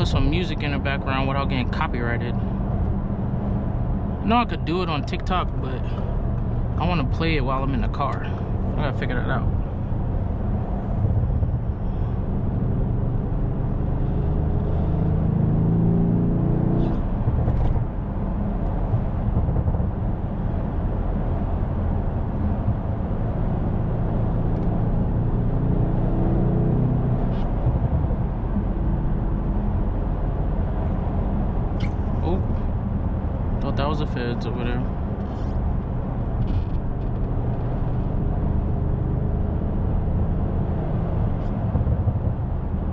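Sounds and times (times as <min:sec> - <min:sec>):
car engine accelerating: 0:00.0 - 0:42.9
road noise: 0:00.0 - 0:42.9.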